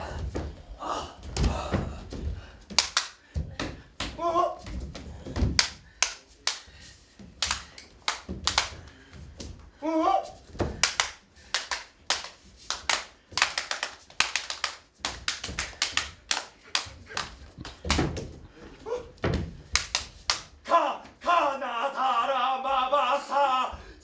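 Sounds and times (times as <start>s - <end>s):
low thuds: 0.0s - 2.7s
hand claps and slaps: 1.4s - 9.7s, 10.4s - 18.4s, 19.2s - 20.6s.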